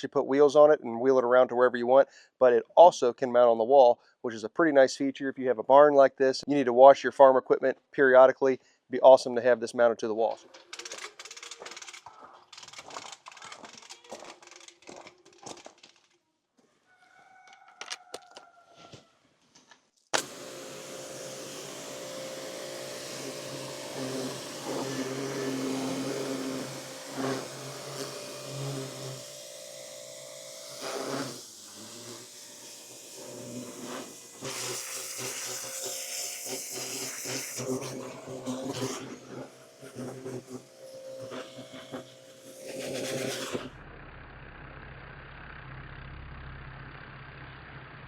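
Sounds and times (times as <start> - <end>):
clicks and rattles of handling: 10.3 - 16.2
water jet hissing: 20.2 - 43.7
pressure washer motor humming: 20.2 - 48.0.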